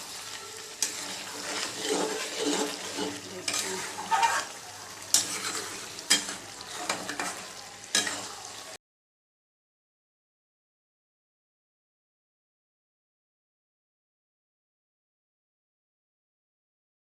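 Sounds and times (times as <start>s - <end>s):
food sizzling in oil: 0.0s - 8.8s
spatula scraping and knocking pan: 0.8s - 8.3s.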